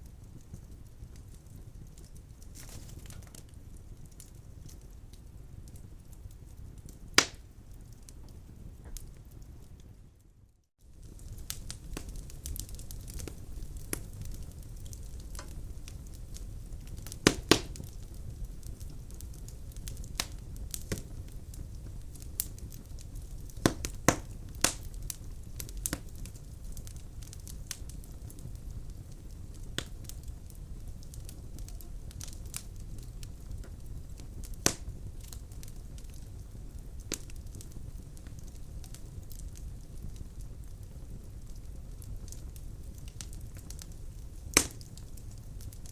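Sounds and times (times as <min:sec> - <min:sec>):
fire crackling and popping: 0:00.0 - 0:45.9
fire rumbling: 0:00.0 - 0:45.9
loud wood snaps: 0:07.2 - 0:07.4, 0:17.2 - 0:17.8, 0:34.6 - 0:34.8, 0:44.5 - 0:44.9.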